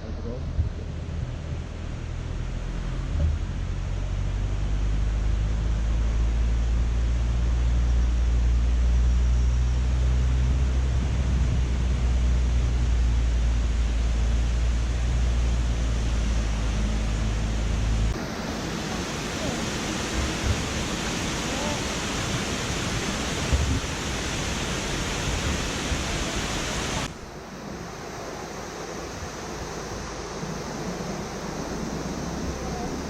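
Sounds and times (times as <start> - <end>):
car engine and road hum: 0.0 - 18.2.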